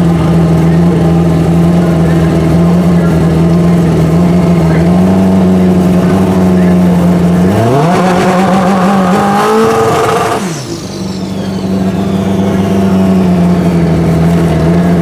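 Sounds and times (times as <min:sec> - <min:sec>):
motorcycle engine revving: 0:00.0 - 0:15.0
motorcycle engine running steadily: 0:00.0 - 0:15.0
faint high whistle: 0:09.6 - 0:14.0.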